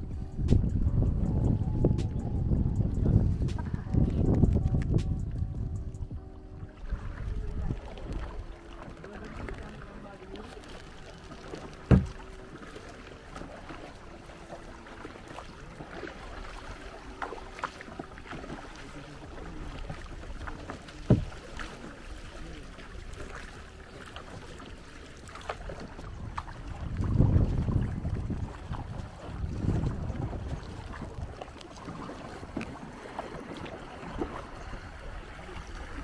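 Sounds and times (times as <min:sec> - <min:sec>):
wind buffeting microphone: 0:00.0 - 0:08.7, 0:25.6 - 0:36.0
paddle dipping and dripping: 0:00.0 - 0:36.0
sharp knocks: 0:11.9 - 0:12.2.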